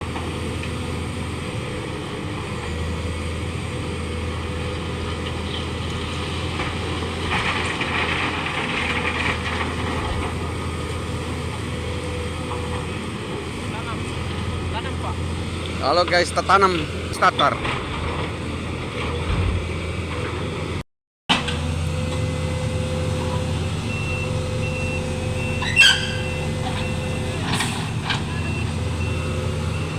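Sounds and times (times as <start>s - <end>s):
diesel engine humming: 0.0s - 20.8s, 21.4s - 29.9s
backup alarm beeping: 23.9s - 29.9s
loud screech: 25.4s - 27.0s.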